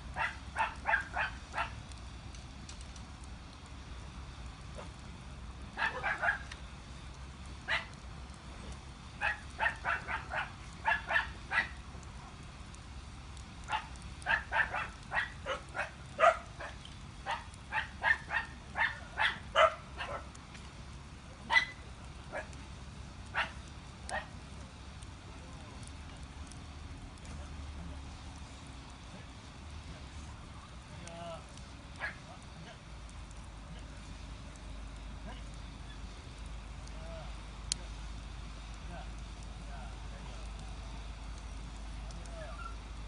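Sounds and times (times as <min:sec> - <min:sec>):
steady low hum: 0:00.0 - 0:43.0
dog barking: 0:00.2 - 0:01.8, 0:05.8 - 0:06.4, 0:09.2 - 0:11.8, 0:13.7 - 0:20.2, 0:21.5 - 0:22.5, 0:23.4 - 0:24.3.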